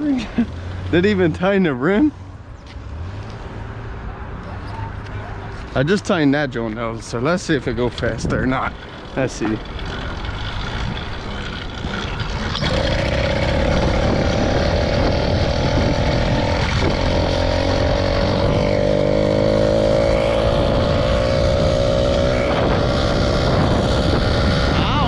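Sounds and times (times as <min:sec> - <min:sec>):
small motorbike engine: 0:08.0 - 0:25.0.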